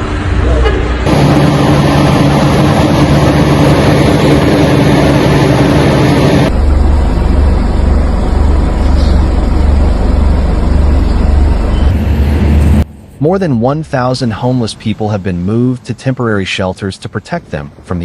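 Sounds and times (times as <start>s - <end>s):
vehicle engine humming: 0.0s - 13.2s
deep low rumble: 0.4s - 13.2s.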